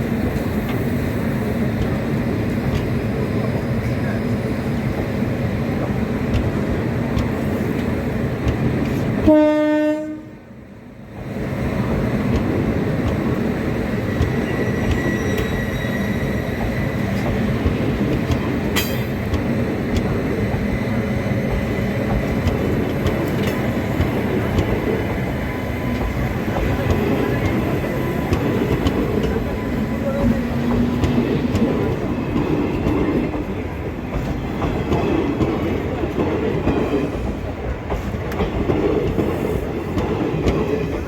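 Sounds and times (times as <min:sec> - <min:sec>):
train running on rails: 0:00.0 - 0:41.0
train horn blast: 0:09.2 - 0:10.4.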